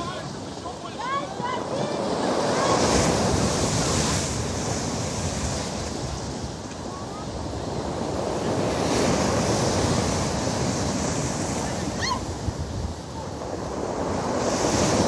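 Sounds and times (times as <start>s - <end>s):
rushing water: 0.0s - 15.0s
waves crashing on pebble beach: 0.0s - 15.0s
wind buffeting microphone: 1.2s - 15.0s.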